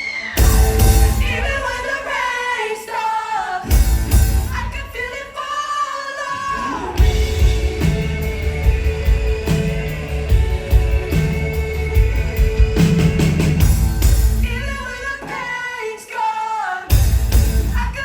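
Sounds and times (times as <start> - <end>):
pop-rock band with drums: 0.0 - 2.6, 3.6 - 5.6, 6.2 - 15.9, 16.9 - 18.0
person singing: 0.0 - 13.7.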